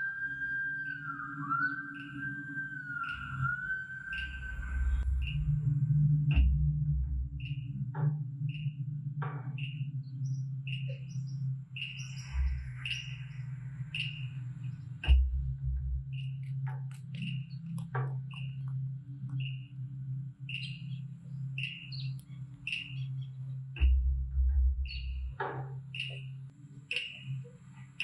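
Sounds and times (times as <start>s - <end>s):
steady low hum: 4.6s - 10.7s
small bird chirping: 9.6s - 15.2s, 20.5s - 24.0s, 24.8s - 28.0s.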